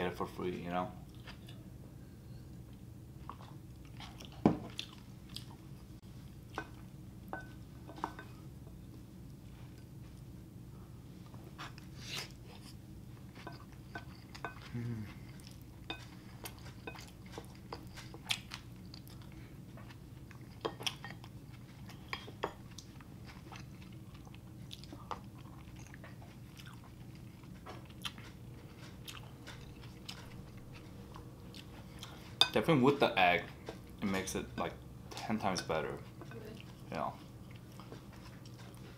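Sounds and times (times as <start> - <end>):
close chewing: 3.2 - 5.7, 13.8 - 22.0, 22.6 - 32.4, 36.2 - 38.9.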